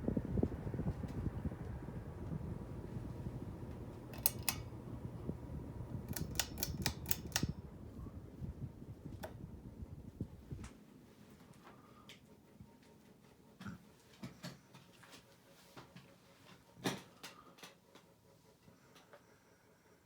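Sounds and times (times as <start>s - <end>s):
ceiling fan rumbling: 0.0s - 20.0s
sharp mechanical clicks: 4.1s - 4.7s, 6.1s - 7.5s.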